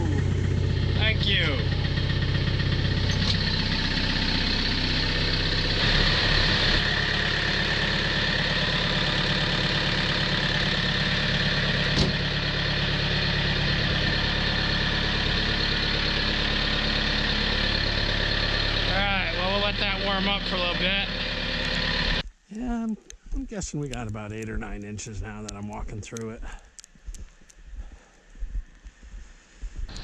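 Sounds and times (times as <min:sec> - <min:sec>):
tractor engine idling: 0:00.0 - 0:22.2.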